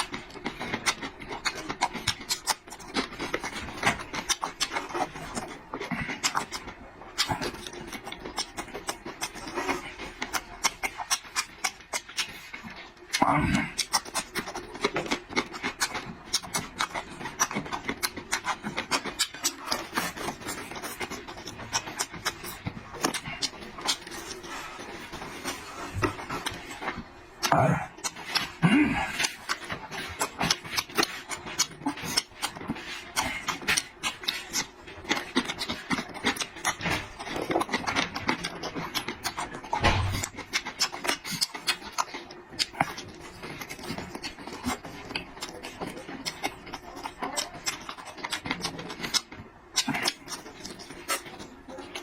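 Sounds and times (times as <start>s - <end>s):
person chewing food noisily: 0.0s - 52.0s.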